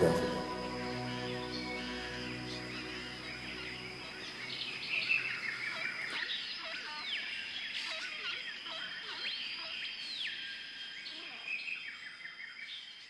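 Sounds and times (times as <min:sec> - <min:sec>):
thin high-pitched tone: 0:00.0 - 0:05.3
birds chirping: 0:00.0 - 0:06.4.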